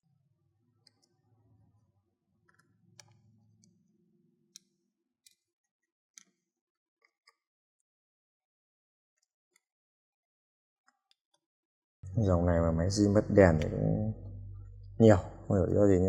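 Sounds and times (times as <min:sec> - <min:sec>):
faint low hum: 0:12.0 - 0:16.0.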